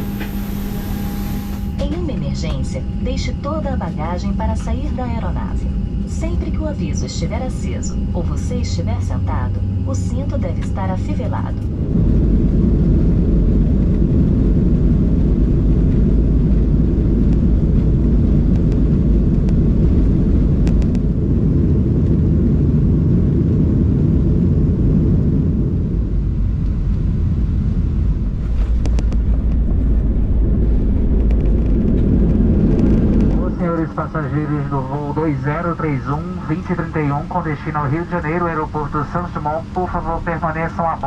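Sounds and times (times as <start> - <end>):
aircraft cabin engine rumble: 0.0 - 41.0
rushing air: 27.1 - 33.9.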